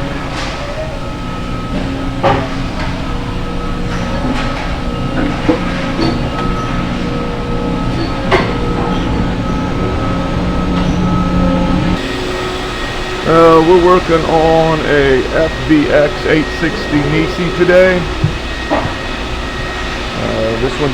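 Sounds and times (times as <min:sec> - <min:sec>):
industrial machinery hum: 0:00.0 - 0:20.9.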